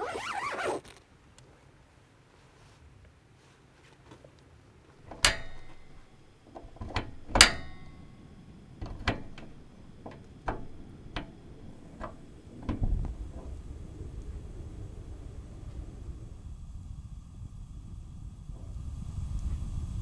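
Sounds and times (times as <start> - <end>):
metallic ringing knocks: 5.1 - 13.2.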